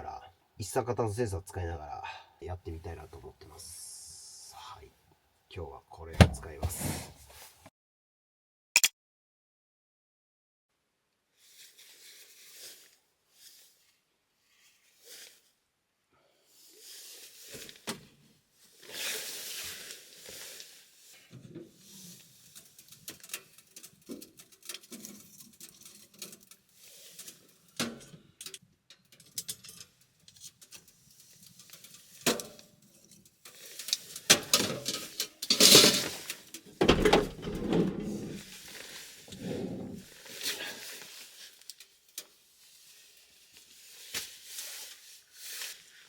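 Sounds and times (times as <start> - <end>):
heavy thumps: 6.1 - 7.2.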